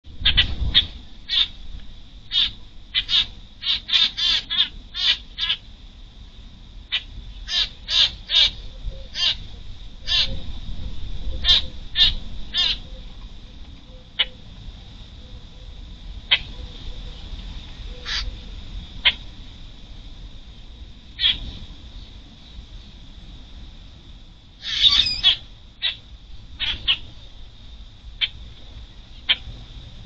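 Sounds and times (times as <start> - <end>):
harsh bird calls: 0.2 - 1.6, 2.3 - 5.6, 6.9 - 10.4, 11.4 - 13.1, 18.0 - 18.4, 21.2 - 21.5, 24.6 - 26.0, 26.6 - 27.2.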